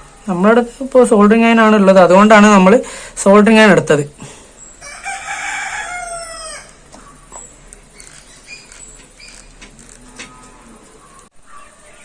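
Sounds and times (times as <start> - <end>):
rooster crowing: 4.8 - 6.9.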